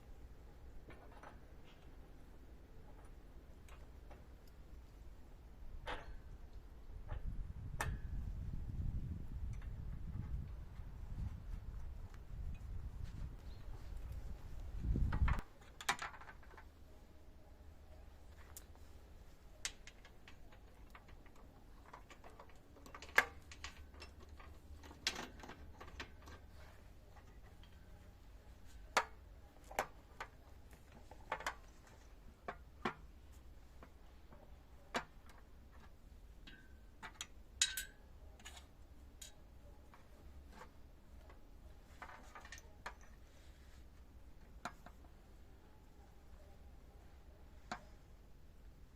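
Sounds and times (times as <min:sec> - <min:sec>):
low steady hum: 0:16.4 - 0:48.9.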